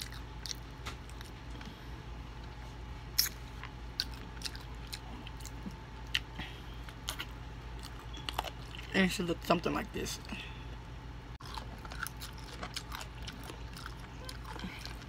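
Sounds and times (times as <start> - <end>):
mouth chewing and sucking bones: 2.4 - 8.9, 11.4 - 15.0.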